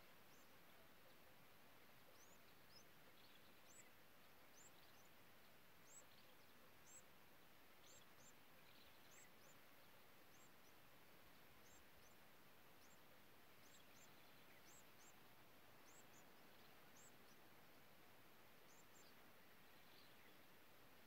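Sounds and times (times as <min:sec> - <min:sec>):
quiet hiss: 0:00.0 - 0:21.0.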